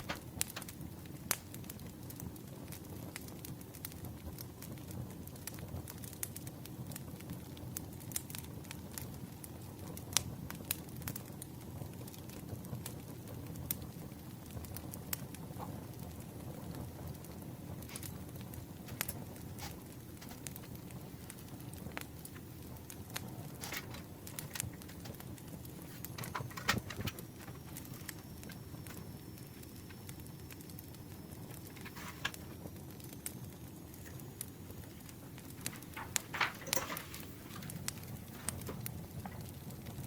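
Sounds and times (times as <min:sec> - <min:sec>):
paper clicks and rustles: 0:00.0 - 0:02.2, 0:15.4 - 0:32.7, 0:33.9 - 0:40.0
campfire crackling: 0:00.0 - 0:40.0.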